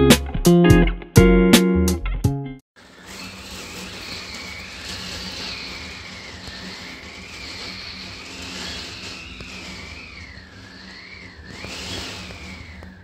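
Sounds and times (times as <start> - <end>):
wind whistling through window: 2.9 - 13.0.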